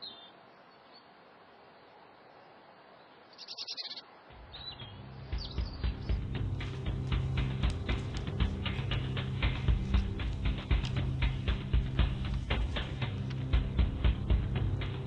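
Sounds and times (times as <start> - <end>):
faint outdoor hiss: 0.0 - 15.0
small birds chirping: 0.0 - 15.0
music with regular beat: 5.3 - 15.0.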